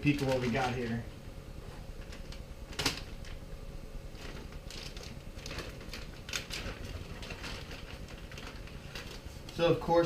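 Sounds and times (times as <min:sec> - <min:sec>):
packaging crinkling and clicking: 0:00.0 - 0:00.9, 0:02.0 - 0:03.4, 0:04.1 - 0:09.7.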